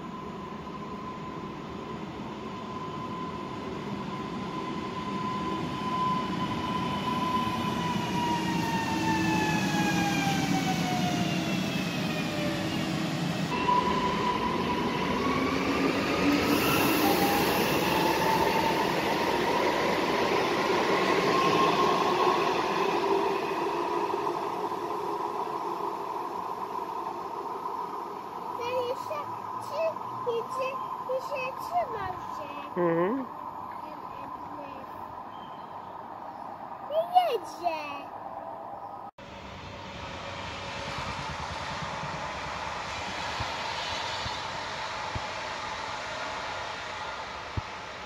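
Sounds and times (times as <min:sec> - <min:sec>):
train wheels rumbling on rails: 0:39.2 - 0:48.0.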